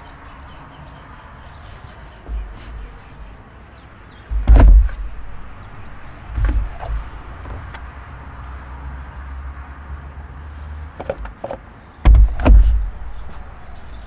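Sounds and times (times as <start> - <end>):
light knocks: 0.0 - 8.1, 11.0 - 14.0
low rumble with faint hiss: 0.0 - 8.8
heavy thump: 1.4 - 3.4, 4.2 - 7.9, 11.0 - 14.0.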